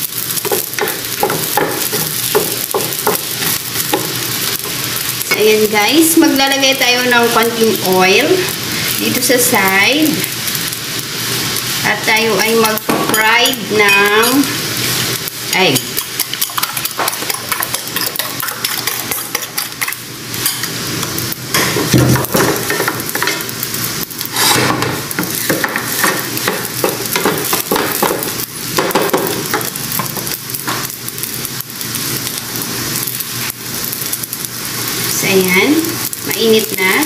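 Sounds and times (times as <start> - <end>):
rice sizzling in a pan: 0.0 - 37.0
wooden spatula scraping a pan: 24.2 - 26.2.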